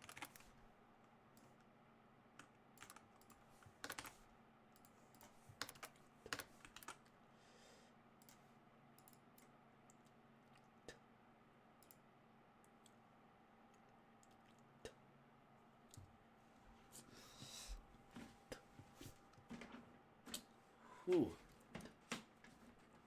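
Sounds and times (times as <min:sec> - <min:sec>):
computer keyboard typing: 0:00.0 - 0:00.6, 0:02.4 - 0:04.2, 0:04.8 - 0:07.1
faint steady hum: 0:00.0 - 0:23.0.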